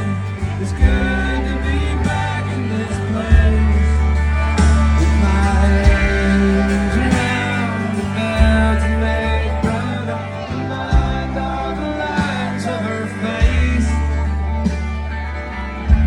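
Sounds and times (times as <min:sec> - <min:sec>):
bass: 0:00.0 - 0:16.0
drums: 0:00.0 - 0:16.0
guitar: 0:00.0 - 0:16.0
person singing: 0:00.0 - 0:16.0.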